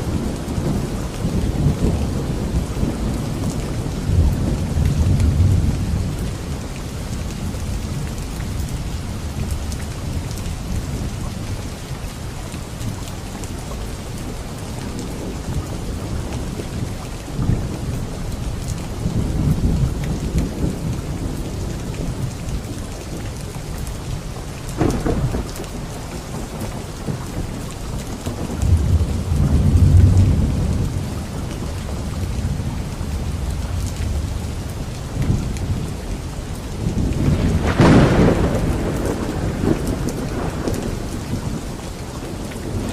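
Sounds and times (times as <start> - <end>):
heavy rain: 0.0 - 42.9
rolling thunder: 24.7 - 36.2, 36.8 - 42.9
thunder crack: 36.9 - 41.7.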